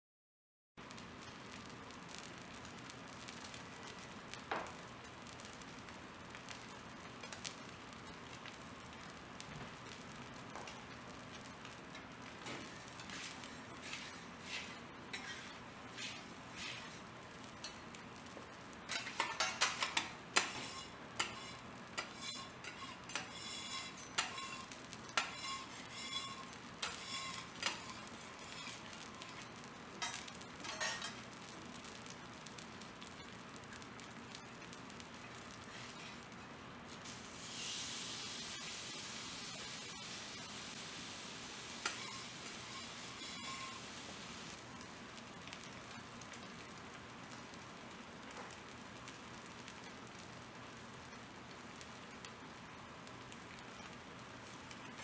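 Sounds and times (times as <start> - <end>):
steak sizzling: 0.8 - 55.0
metal utensils clinking: 18.9 - 29.4, 30.0 - 31.2.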